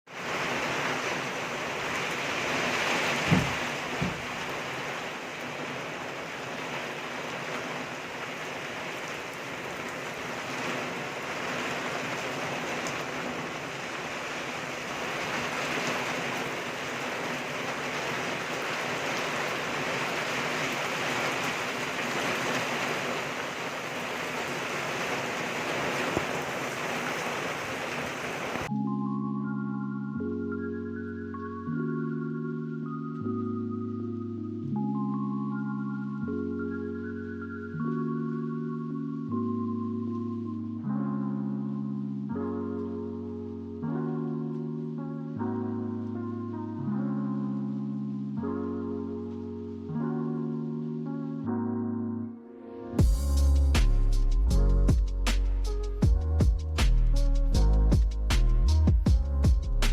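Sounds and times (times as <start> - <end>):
steady rain falling: 0.1 - 28.7, 34.8 - 51.4, 53.0 - 59.9
low thumps: 3.2 - 4.6.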